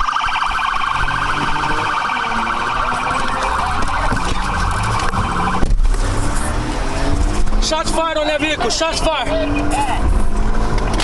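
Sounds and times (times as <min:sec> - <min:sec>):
police siren warbling: 0:00.0 - 0:05.8
low vehicle rumble: 0:00.0 - 0:11.0.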